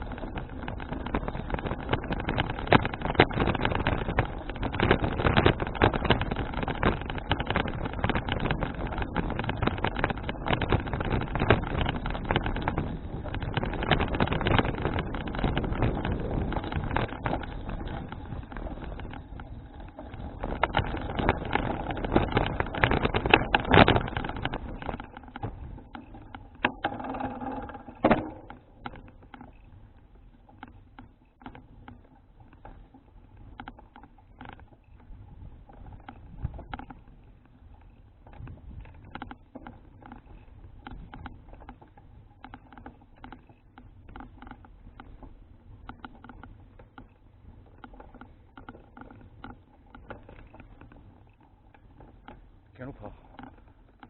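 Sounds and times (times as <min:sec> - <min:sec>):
wind on microphone: 0:00.0 - 0:29.1, 0:35.0 - 0:43.4
bicycle clicks and rattles: 0:00.0 - 0:54.0.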